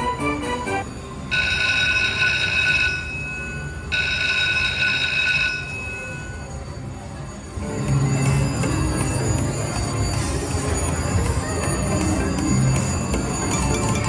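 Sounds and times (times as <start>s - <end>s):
slot machine jingle notes: 7.6s - 14.0s.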